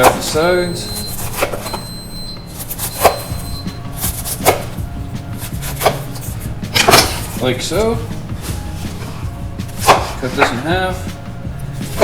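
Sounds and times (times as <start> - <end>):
knife slicing pineapple: 0.0 - 1.8, 2.6 - 7.7, 8.4 - 10.7.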